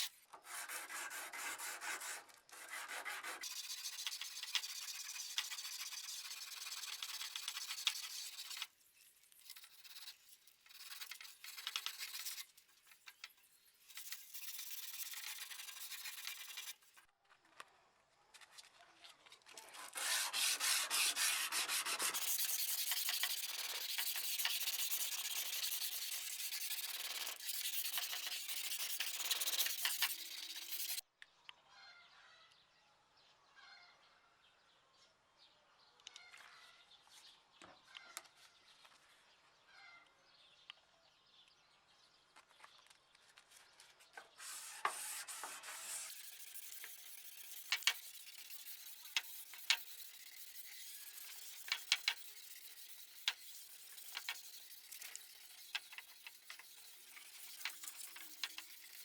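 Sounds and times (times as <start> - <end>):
rubbing on a steel blade: 0.0 - 17.0, 19.8 - 31.0, 44.4 - 59.0.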